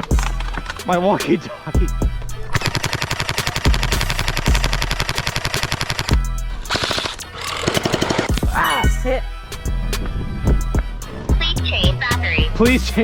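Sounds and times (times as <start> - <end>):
music with bass beat: 0.0 - 0.9, 1.7 - 2.5, 3.6 - 5.0, 6.1 - 6.7, 8.3 - 13.0.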